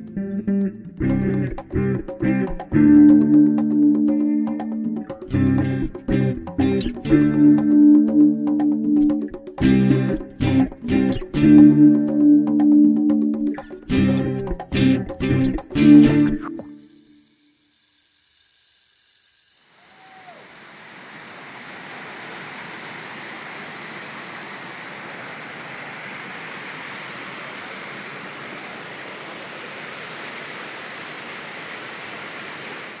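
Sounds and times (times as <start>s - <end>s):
waterfall rushing: 19.8s - 33.0s.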